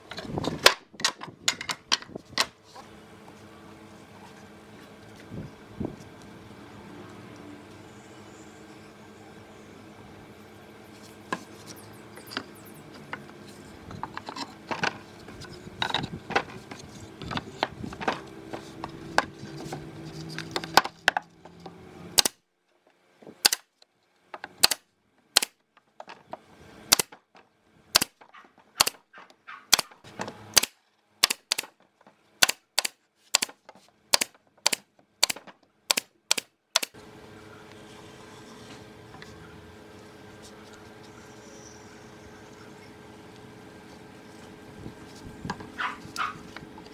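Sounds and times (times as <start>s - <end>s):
nails hammered into wood: 32.4s - 37.0s.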